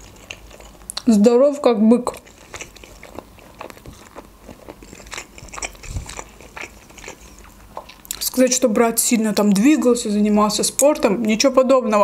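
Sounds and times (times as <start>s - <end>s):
chewing food with mouth clicks: 0.0s - 1.1s, 2.1s - 8.4s.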